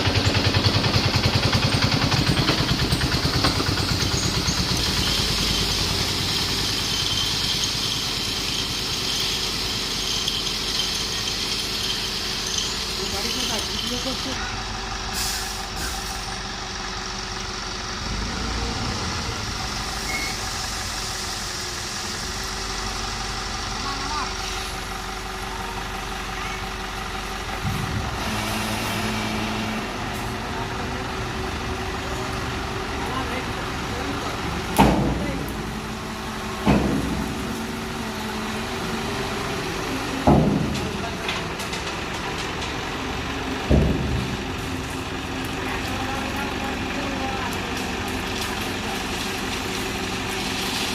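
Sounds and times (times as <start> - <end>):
diesel truck engine running: 0.0 - 50.9
loud heavy thump: 43.6 - 44.5.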